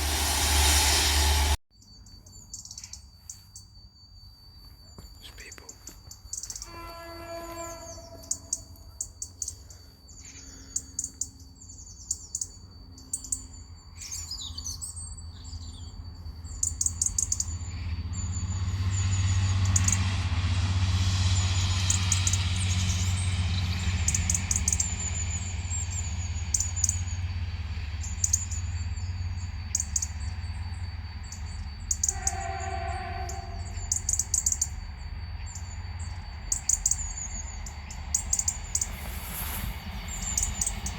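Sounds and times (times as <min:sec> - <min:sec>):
train horn: 0:00.0 - 0:01.6, 0:06.6 - 0:09.0, 0:31.9 - 0:34.7
train rumble: 0:00.0 - 0:01.6, 0:05.0 - 0:11.8, 0:15.2 - 0:40.9.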